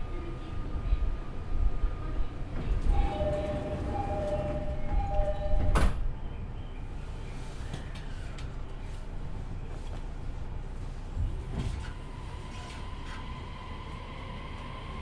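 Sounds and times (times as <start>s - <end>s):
two-tone door chime: 2.9s - 6.0s.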